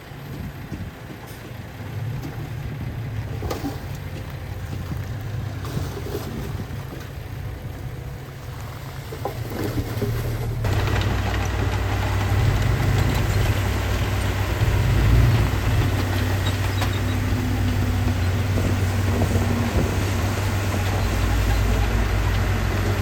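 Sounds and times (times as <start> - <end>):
diesel engine running at low revs: 0.0 - 23.0.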